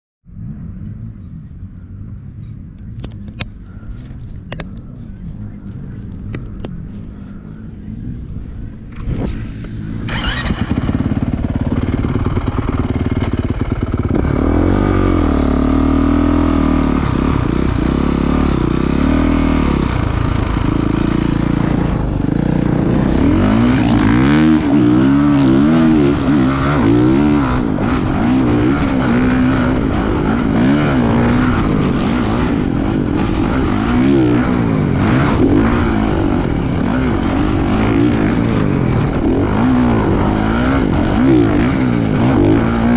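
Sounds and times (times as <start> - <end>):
dirt bike engine revving: 9.0 - 42.9.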